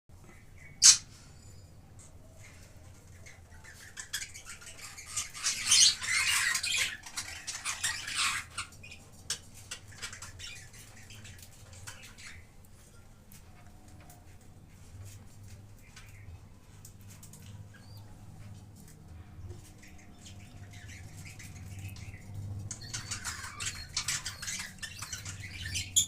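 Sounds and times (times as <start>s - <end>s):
budgerigars chattering and squawking: 0.6s - 1.2s, 2.4s - 12.6s, 19.7s - 26.0s.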